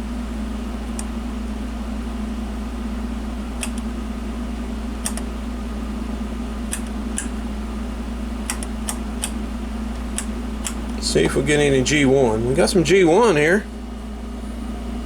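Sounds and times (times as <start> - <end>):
steady low hum: 0.0 - 15.0
selector switch clicks: 3.6 - 3.9, 5.0 - 5.3, 6.7 - 7.4, 8.4 - 9.4, 10.0 - 11.0.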